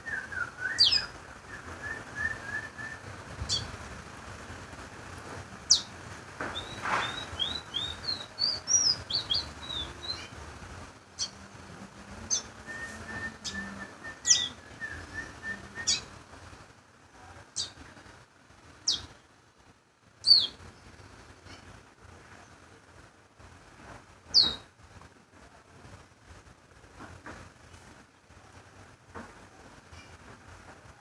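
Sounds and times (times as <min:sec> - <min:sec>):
songbird singing: 0:00.0 - 0:04.0, 0:05.1 - 0:16.3, 0:17.6 - 0:18.0, 0:18.8 - 0:19.2, 0:20.2 - 0:21.1, 0:24.3 - 0:24.7.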